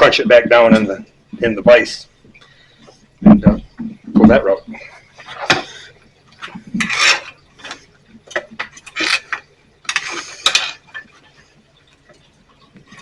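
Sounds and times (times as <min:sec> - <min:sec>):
metallic clicks and rasps: 0:06.3 - 0:13.0.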